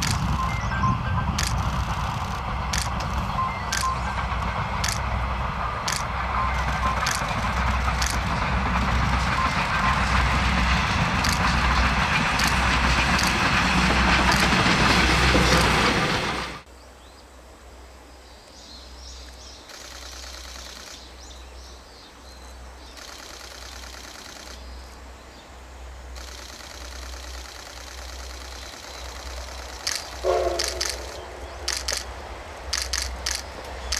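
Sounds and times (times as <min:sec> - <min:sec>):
bird chirps: 0:00.0 - 0:05.2, 0:26.2 - 0:32.1
steam train passing: 0:00.0 - 0:16.7, 0:19.6 - 0:33.9.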